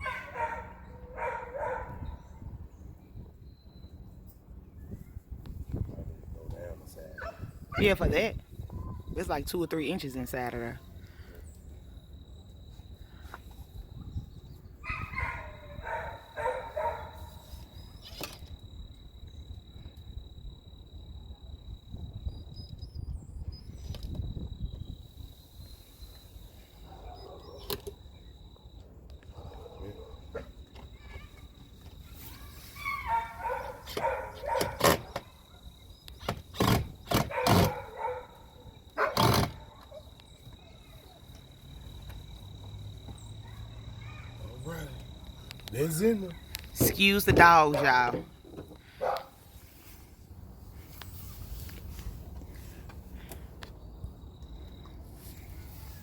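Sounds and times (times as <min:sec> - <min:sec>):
dogs barking: 0:00.0 - 0:02.3, 0:07.2 - 0:08.0, 0:14.8 - 0:17.4, 0:26.8 - 0:27.7, 0:29.2 - 0:30.6, 0:32.8 - 0:35.7, 0:37.1 - 0:40.2, 0:48.9 - 0:49.4.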